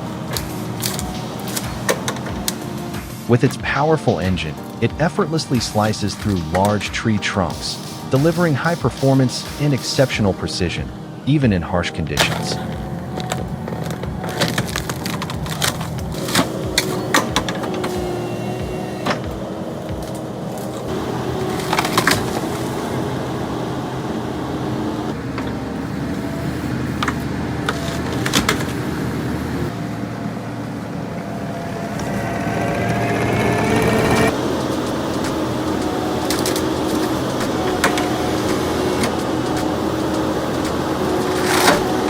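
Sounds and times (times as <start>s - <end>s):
machine engine running: 7.4s - 11.1s, 12.2s - 42.0s.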